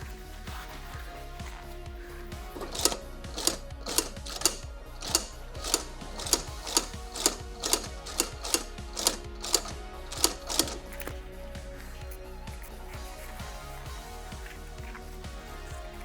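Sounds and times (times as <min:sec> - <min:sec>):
background music: 0:00.0 - 0:16.0
sharp mechanical clicks: 0:02.5 - 0:11.2.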